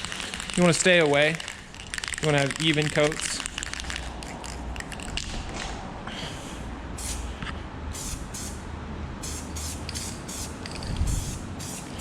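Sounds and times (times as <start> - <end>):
spray paint can hissing: 7.0 - 7.2, 7.9 - 8.6, 9.2 - 12.0.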